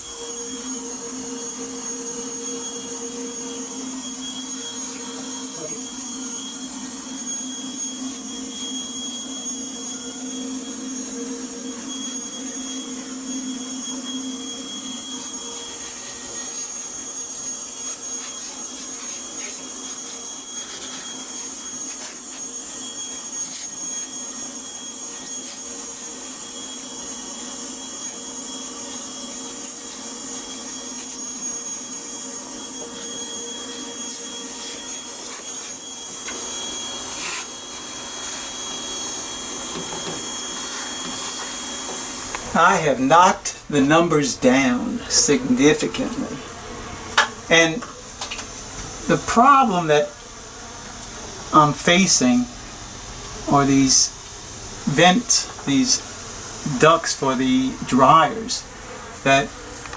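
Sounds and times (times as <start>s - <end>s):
bee vacuum motor whine: 0.0s - 59.9s.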